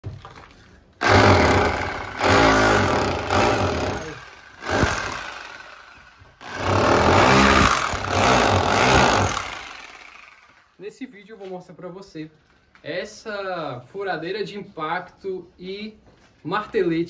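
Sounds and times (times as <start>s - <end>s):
electric rotary hammer: 1.0s - 10.8s.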